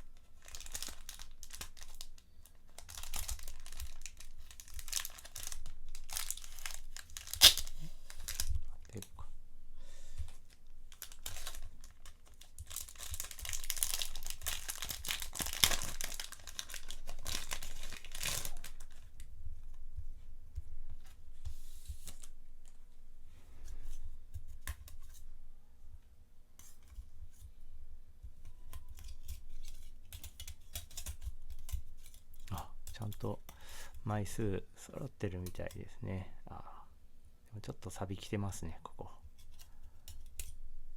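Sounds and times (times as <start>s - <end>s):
packaging being torn and crinkled: 0.0s - 9.1s, 10.9s - 19.2s.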